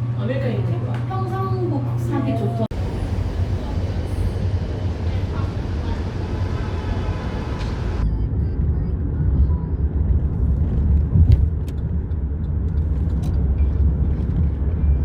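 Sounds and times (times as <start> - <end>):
vehicle rumble: 2.6 - 15.0.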